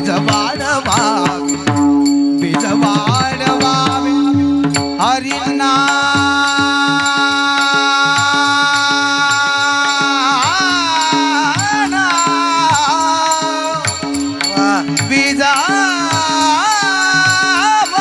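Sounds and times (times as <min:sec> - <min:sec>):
percussion strokes: 0:00.0 - 0:18.0
person singing devotional melody: 0:00.0 - 0:18.0.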